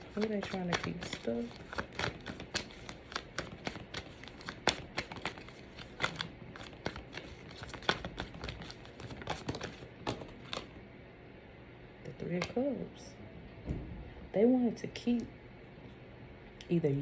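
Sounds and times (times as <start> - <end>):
cards being shuffled: 0.0 - 10.7.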